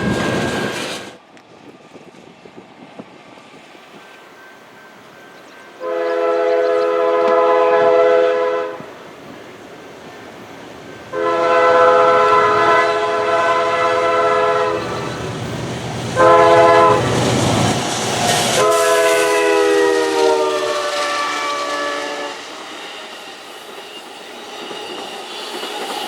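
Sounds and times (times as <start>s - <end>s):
train passing rumble: 0.0s - 26.0s
locomotive air horn: 5.8s - 9.0s, 11.1s - 15.2s, 16.2s - 17.3s, 18.5s - 22.5s.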